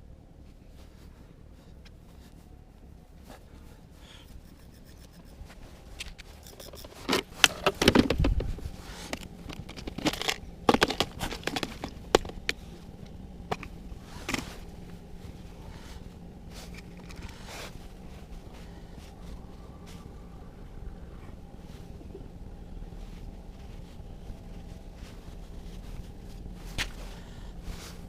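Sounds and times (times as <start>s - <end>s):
handling scrapes and rustling: 1.8s - 20.3s.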